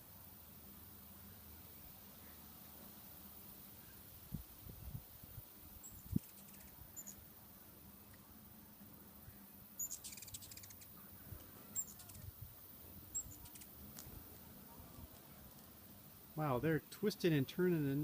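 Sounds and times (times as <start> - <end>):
rapid bird chattering: 5.8 - 7.2, 9.8 - 11.1, 11.8 - 12.3, 13.1 - 13.8
hummingbird chip calls: 5.8 - 7.3, 9.8 - 12.4, 13.0 - 13.8.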